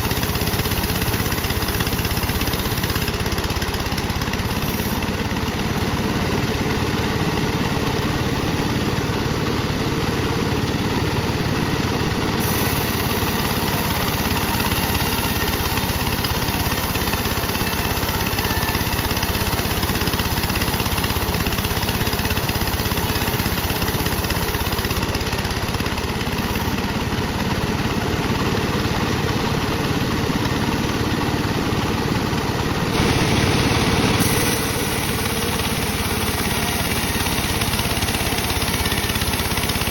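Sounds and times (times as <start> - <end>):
bandsaw sawing wood: 32.9 - 39.9.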